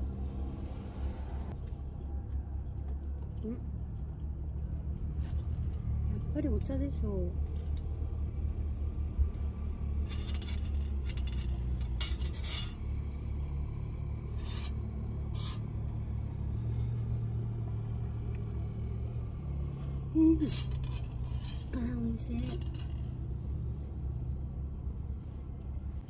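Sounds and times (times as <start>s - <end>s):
vehicle engine idling: 0.0s - 26.0s
rustling and scraping: 1.5s - 6.1s, 7.4s - 13.2s, 14.2s - 15.9s, 19.7s - 24.0s.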